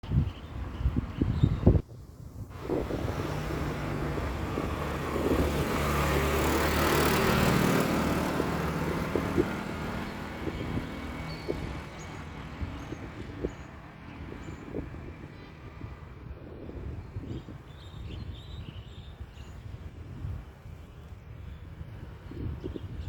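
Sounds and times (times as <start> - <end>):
vehicle driving past: 2.5 - 15.9.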